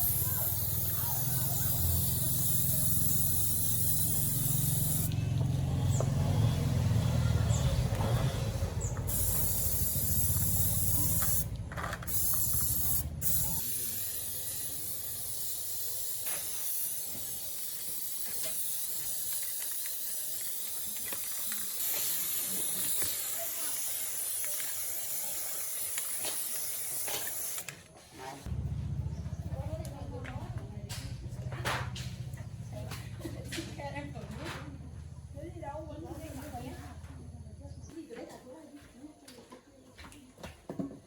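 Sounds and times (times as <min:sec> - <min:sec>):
high-pitched air jet hiss: 0:00.0 - 0:05.2, 0:08.8 - 0:27.6.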